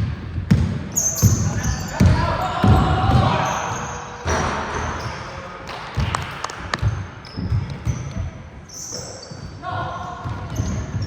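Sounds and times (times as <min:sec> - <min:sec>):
basketball bouncing on court floor: 0:00.0 - 0:03.5, 0:05.7 - 0:08.4, 0:10.1 - 0:11.0.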